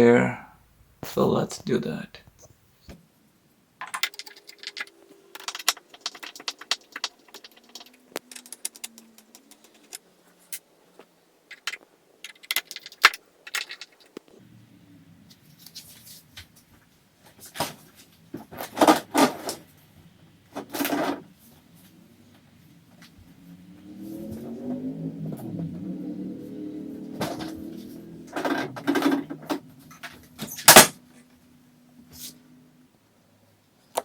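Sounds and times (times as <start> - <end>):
metal clicks and rattles of screws: 3.8 - 10.6, 11.5 - 14.2.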